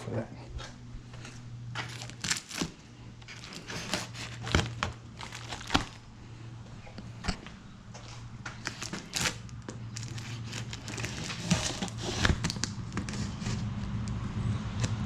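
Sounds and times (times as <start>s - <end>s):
road traffic passing: 0.6s - 15.0s
cardboard clicks and crinkles: 1.2s - 6.0s, 8.0s - 14.2s.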